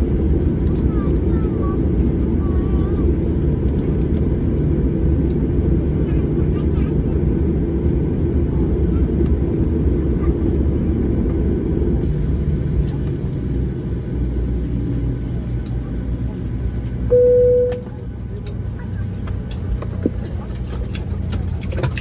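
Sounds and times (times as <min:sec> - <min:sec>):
airliner cabin rumble: 0:00.0 - 0:22.0
cabin chime: 0:17.1 - 0:17.9.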